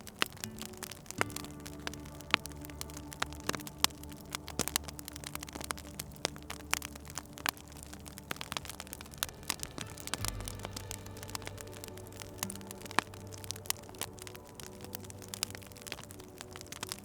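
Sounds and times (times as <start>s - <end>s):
low steady hum: 0.0s - 17.0s
wood fire crackling: 0.0s - 17.0s.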